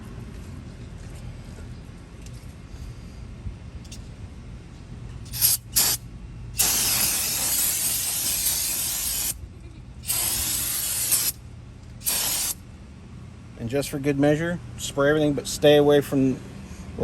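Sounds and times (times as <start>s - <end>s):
aerosol spray can hissing: 5.3s - 6.0s, 6.6s - 9.4s, 10.1s - 11.4s, 12.0s - 12.6s.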